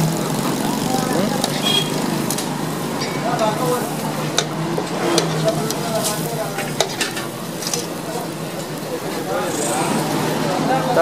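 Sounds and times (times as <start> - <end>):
flatbread sizzling in oil: 0.0 - 11.0
metal spatula scraping griddle: 1.4 - 2.4, 4.3 - 10.4.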